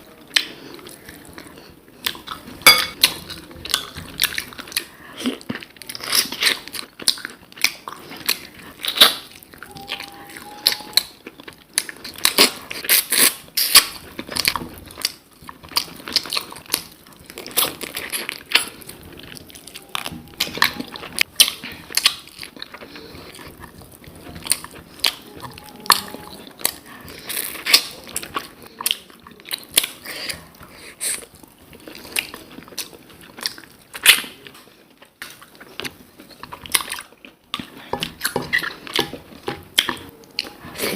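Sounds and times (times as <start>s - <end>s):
food crunching: 0.0s - 40.9s
person chewing: 0.0s - 40.9s.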